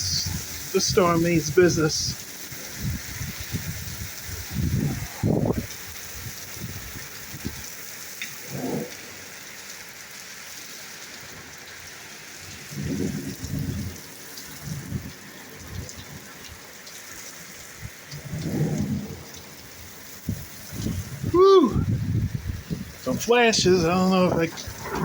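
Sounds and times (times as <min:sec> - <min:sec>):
low thunder rumbles: 0:00.0 - 0:07.7, 0:12.5 - 0:16.7, 0:17.8 - 0:25.0
heavy rain hissing: 0:00.0 - 0:25.0.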